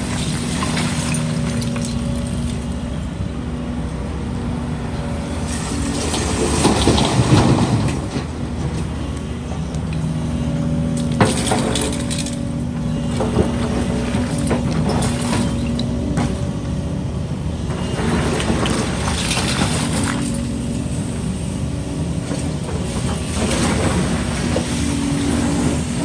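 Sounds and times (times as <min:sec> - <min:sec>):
diesel excavator engine running: 0:00.0 - 0:26.0
concrete rubble crunching: 0:10.9 - 0:16.4.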